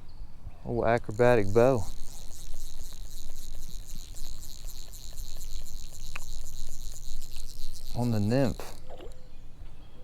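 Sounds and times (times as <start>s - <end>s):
insects buzzing: 0.7s - 9.6s.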